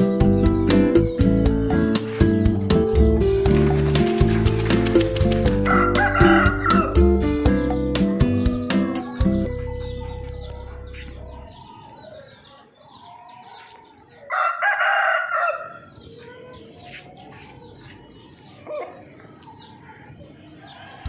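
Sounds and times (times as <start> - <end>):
rooster crowing: 5.6 - 7.1, 13.1 - 16.6
fowl clucking and chirping: 5.6 - 21.0.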